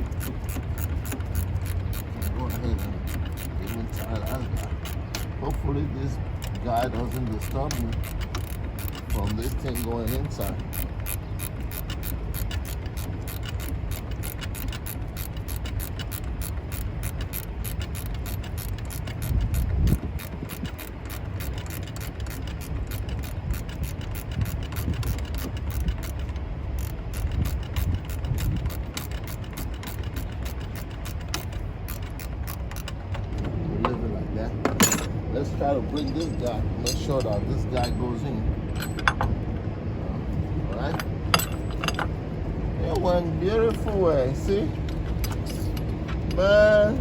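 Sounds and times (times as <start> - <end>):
ratchet wrench clicking: 0.0 - 33.3, 34.8 - 35.2, 36.0 - 38.0, 40.8 - 42.2.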